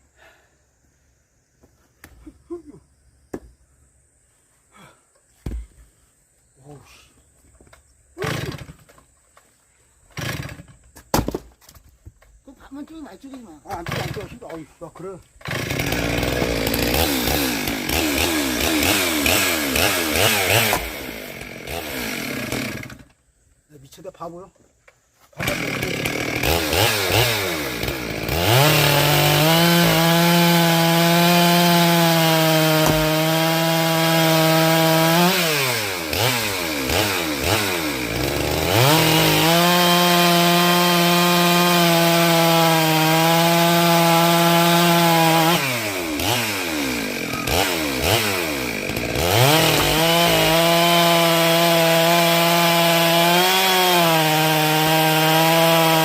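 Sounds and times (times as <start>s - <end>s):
chainsaw revving and idling: 8.2s - 8.9s, 10.2s - 10.7s, 13.0s - 23.2s, 25.4s - 56.0s.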